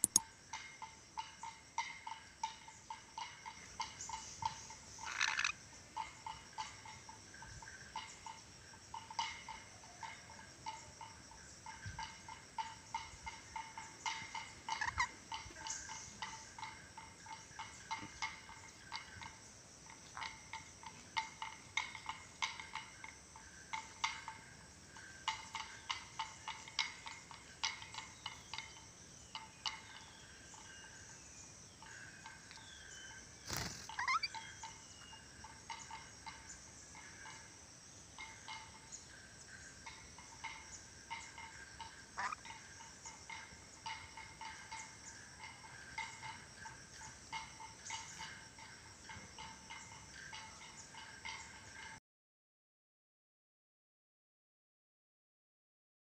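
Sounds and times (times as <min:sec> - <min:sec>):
lorikeet chirping: 0:03.5 - 0:08.5, 0:11.6 - 0:19.2, 0:25.2 - 0:37.4, 0:38.1 - 0:48.3.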